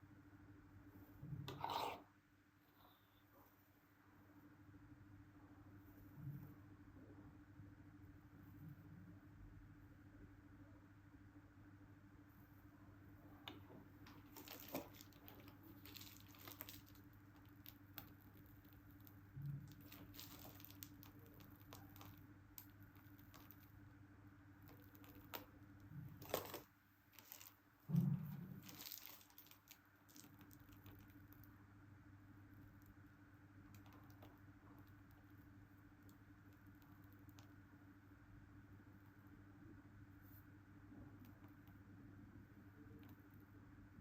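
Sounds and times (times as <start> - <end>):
light rustling and crinkling: 13.7 - 23.8, 24.6 - 31.5.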